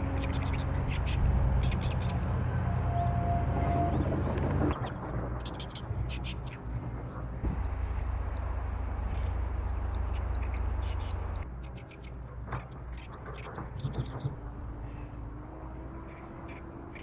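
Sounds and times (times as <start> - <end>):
low rumble: 6.7 - 11.5
birds singing high notes: 7.4 - 11.5.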